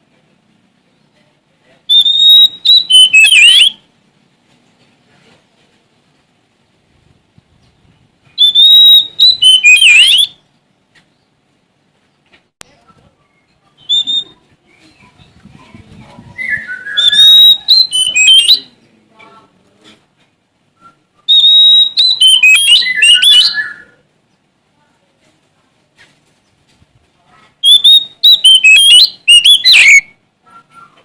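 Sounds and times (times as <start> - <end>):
bird singing whistled phrases: 1.9 - 3.8, 8.4 - 10.4, 13.3 - 14.4, 16.3 - 18.8, 20.8 - 24.0, 27.6 - 31.0.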